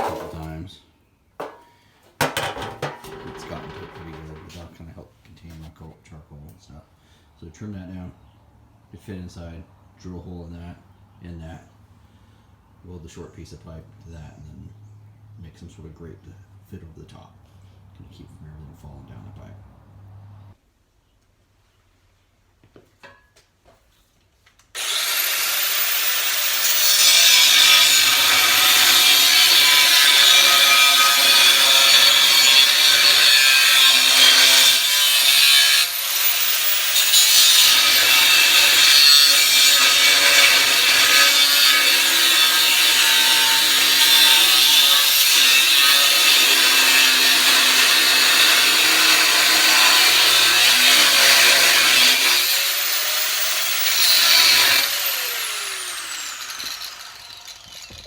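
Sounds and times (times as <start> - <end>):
power tool cutting steel: 2.2 - 4.7, 24.8 - 58.0.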